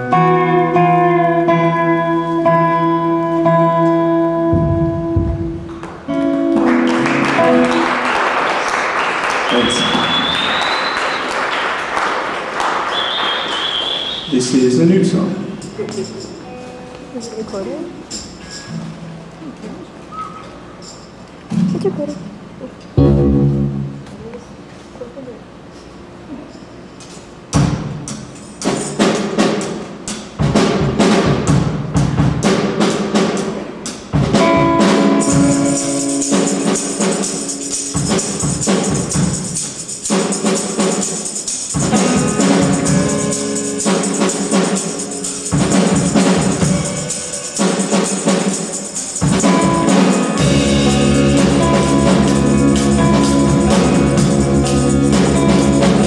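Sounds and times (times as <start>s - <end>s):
acoustic band playing: 0.0s - 25.0s, 27.0s - 56.0s
deep bass line: 4.5s - 5.8s, 23.0s - 24.4s, 50.4s - 56.0s
sharp percussive hits: 4.5s - 8.1s, 23.0s - 24.3s, 27.5s - 56.0s.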